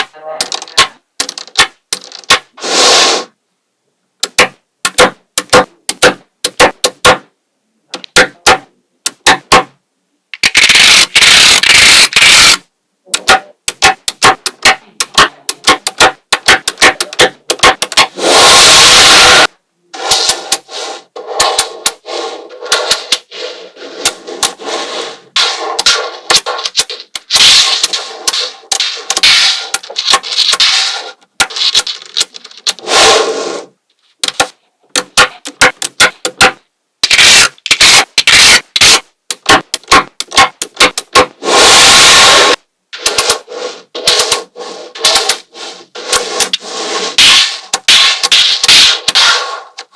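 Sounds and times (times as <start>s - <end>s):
magnetic balls clicking together: 0.0s - 2.5s, 10.3s - 18.2s, 25.8s - 30.8s, 31.4s - 32.8s, 34.2s - 41.4s.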